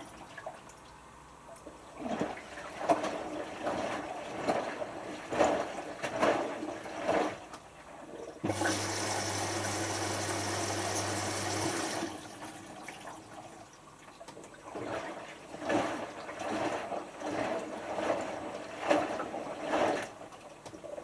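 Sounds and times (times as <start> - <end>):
laundry sloshing in drum: 1.7 - 21.0
water rushing into washing machine: 1.9 - 21.0.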